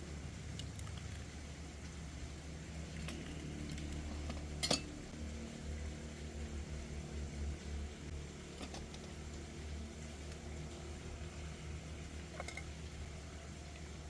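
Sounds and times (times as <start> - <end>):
kitchenware clink: 4.6 - 4.9.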